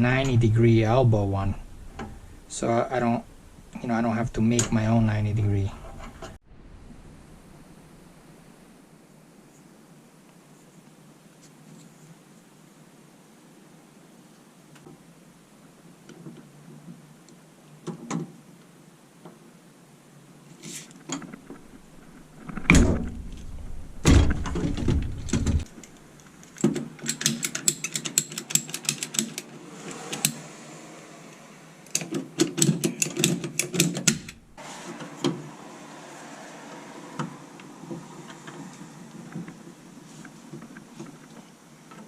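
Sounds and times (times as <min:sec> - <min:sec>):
heavy bumping and handling: 0:21.1 - 0:25.7.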